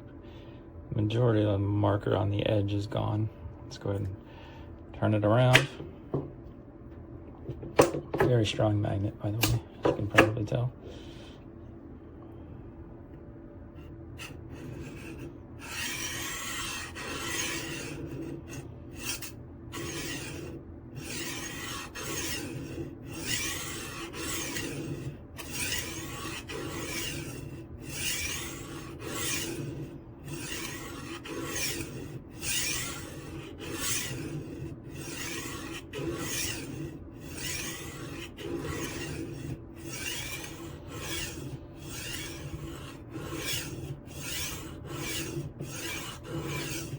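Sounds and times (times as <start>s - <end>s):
knife sharpener grinding steel: 13.8s - 46.9s.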